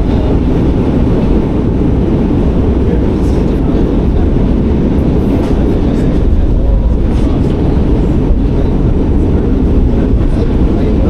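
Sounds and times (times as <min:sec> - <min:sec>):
subway train rumble: 0:00.0 - 0:11.0
faint clicks from rails: 0:05.4 - 0:06.3.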